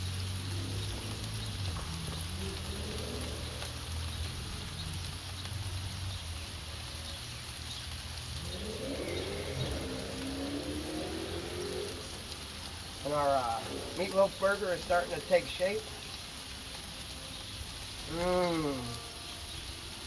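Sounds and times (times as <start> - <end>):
patty sizzling: 0.0 - 19.2
rising tone: 8.2 - 15.3.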